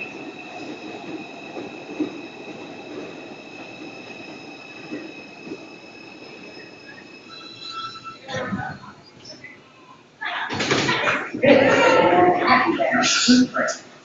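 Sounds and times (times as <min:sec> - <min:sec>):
subway train rumbling: 0:00.0 - 0:10.3, 0:11.0 - 0:14.0.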